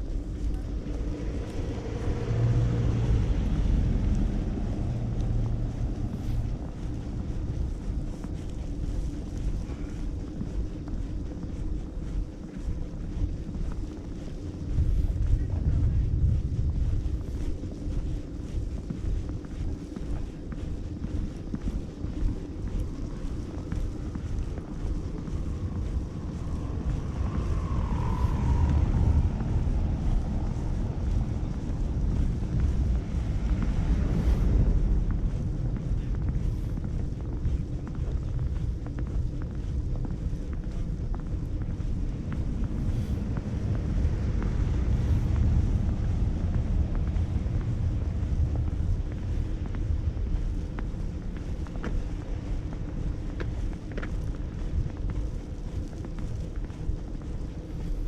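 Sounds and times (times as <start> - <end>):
city traffic: 0.0 - 10.6, 22.8 - 39.9, 40.8 - 58.0
faint whine: 0.0 - 58.0
wind buffeting microphone: 0.0 - 58.0
faint ticks: 0.2 - 15.3.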